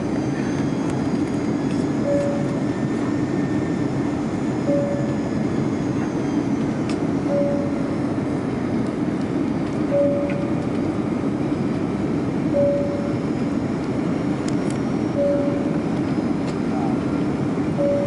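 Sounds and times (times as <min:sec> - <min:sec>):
airliner cabin engine rumble: 0:00.0 - 0:18.0
short beep: 0:17.8 - 0:18.0.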